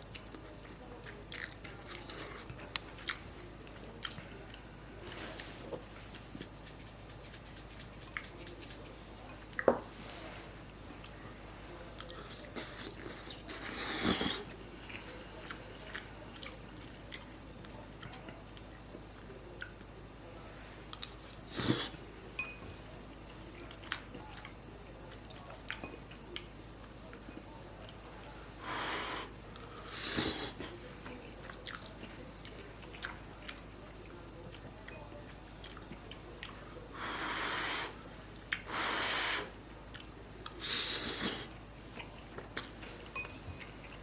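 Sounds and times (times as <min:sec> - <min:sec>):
wet chewing: 0:00.0 - 0:04.6, 0:12.0 - 0:19.0, 0:29.6 - 0:33.7.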